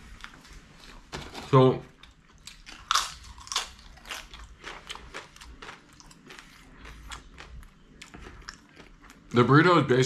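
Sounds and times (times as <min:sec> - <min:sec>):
person chewing food: 0:02.0 - 0:09.4.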